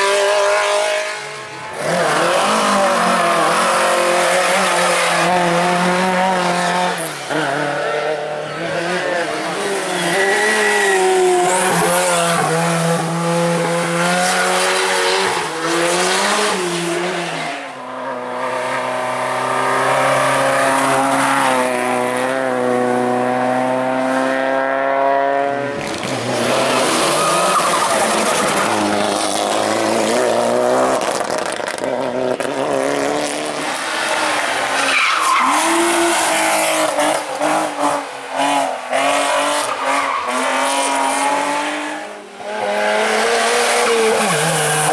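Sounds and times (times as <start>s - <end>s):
rally car engines revving hard: 0.0s - 44.9s
tyres squealing and skidding: 25.8s - 30.2s, 33.7s - 38.0s, 38.6s - 41.1s.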